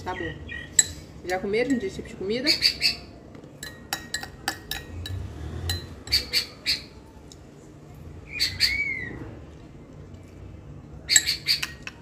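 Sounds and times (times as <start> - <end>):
spoon clinking on glass bowl: 3.6 - 6.2
small bird chirping: 6.1 - 6.9.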